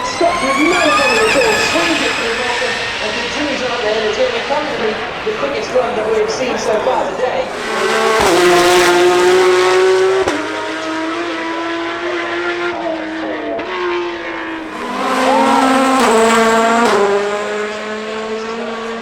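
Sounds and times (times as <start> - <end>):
cars passing: 0.0 - 19.0
racing car engine at high revs: 0.0 - 19.0.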